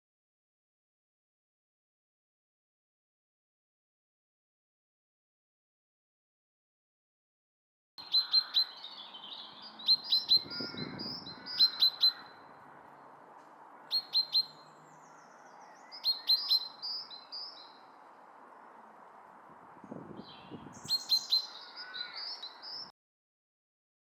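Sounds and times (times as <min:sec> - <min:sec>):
chaffinch calling: 0:08.0 - 0:12.6, 0:13.8 - 0:18.0, 0:20.2 - 0:22.9.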